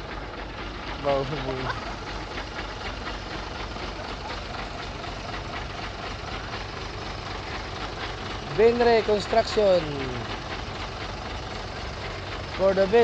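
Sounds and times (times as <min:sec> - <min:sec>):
heavy truck engine idling: 0:00.0 - 0:13.0.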